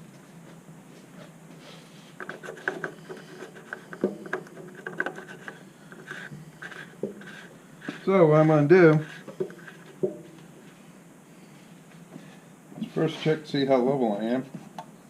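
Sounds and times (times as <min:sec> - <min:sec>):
plastic lid clicks and scrapes: 0:02.2 - 0:08.0
sharp knocks: 0:09.9 - 0:10.4.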